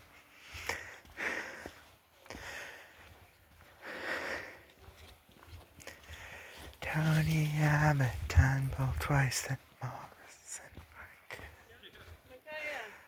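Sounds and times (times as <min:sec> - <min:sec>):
person breathing and sniffing: 0:03.8 - 0:04.7.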